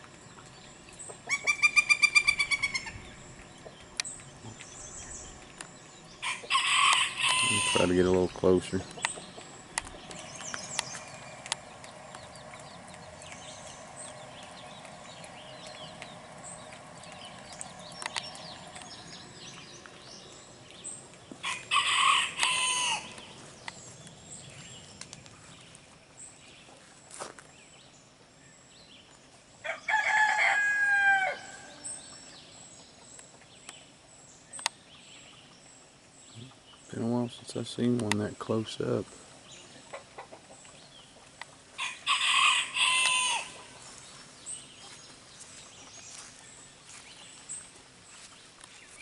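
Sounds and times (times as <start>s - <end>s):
rooster crowing: 6.2s - 7.9s, 21.4s - 23.2s, 29.6s - 31.8s, 41.8s - 43.7s.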